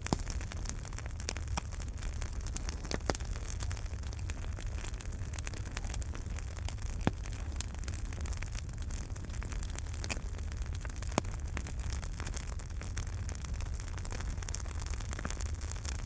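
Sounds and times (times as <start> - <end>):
fire popping loudly: 0.0 - 16.0
wood fire crackling: 0.0 - 16.0.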